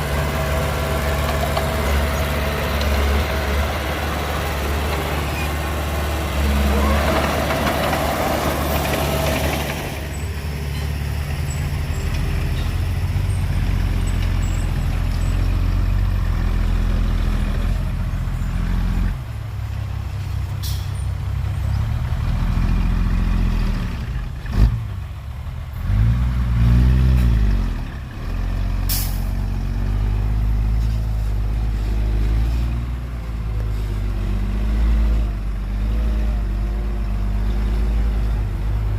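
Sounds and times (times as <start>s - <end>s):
engine revving: 0.0s - 10.2s
heavy diesel engines running: 0.0s - 38.9s.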